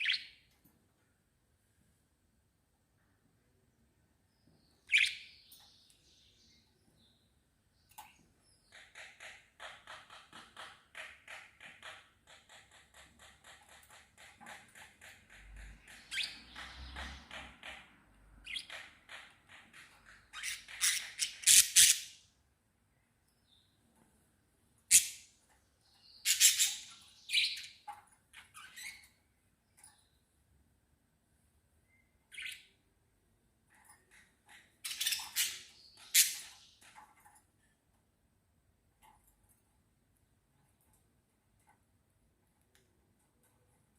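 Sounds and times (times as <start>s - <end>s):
small birds chirping: 0.0s - 0.8s, 3.0s - 30.9s, 31.6s - 37.9s.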